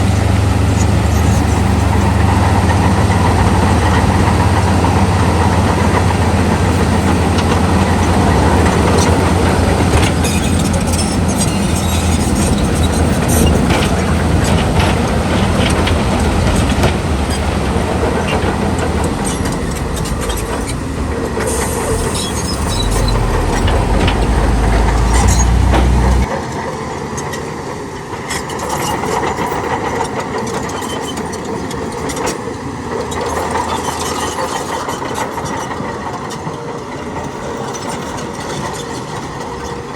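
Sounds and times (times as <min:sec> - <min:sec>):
heavy diesel engine running: 0:00.0 - 0:26.4
clanks and rattles: 0:07.1 - 0:26.3.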